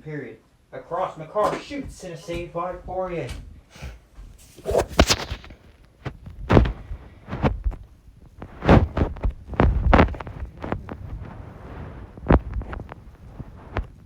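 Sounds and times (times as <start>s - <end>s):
hockey sticks knocking ball and floor: 1.4s - 6.8s.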